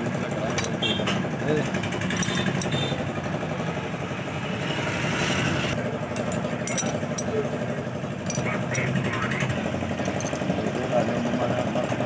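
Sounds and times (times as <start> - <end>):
tractor diesel engine idling: 0.0 - 4.7.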